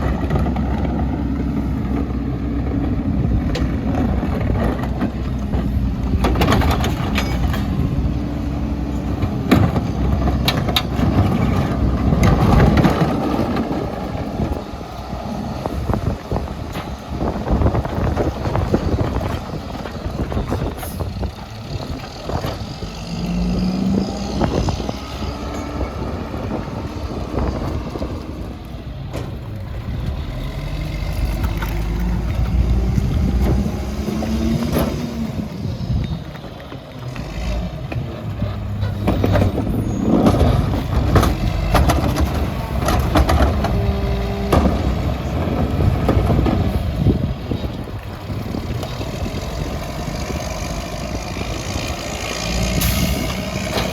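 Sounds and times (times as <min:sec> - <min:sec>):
garbage truck engine revving: 0:00.0 - 0:53.9
clanks and knocks: 0:03.4 - 0:08.0, 0:37.9 - 0:46.7.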